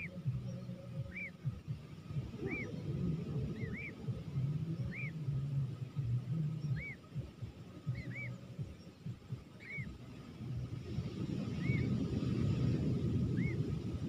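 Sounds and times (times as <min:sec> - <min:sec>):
bird call notes: 0:00.0 - 0:10.0
low rumble: 0:00.0 - 0:14.0.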